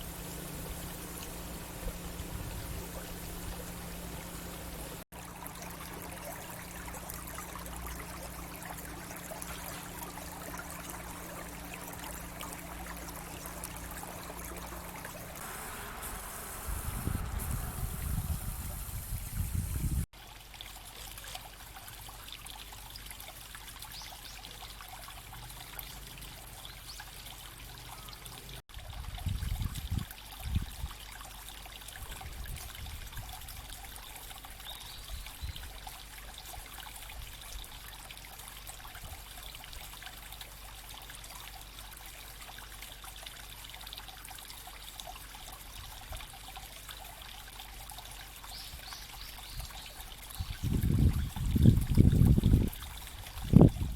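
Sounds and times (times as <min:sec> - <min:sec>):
brook babbling: 0:00.0 - 0:53.9
low rumbles: 0:06.8 - 0:20.1.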